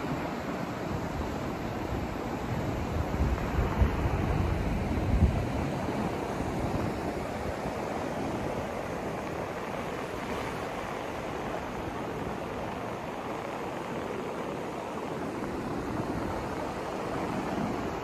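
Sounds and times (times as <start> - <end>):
rushing white-noise hiss: 0.0 - 18.0.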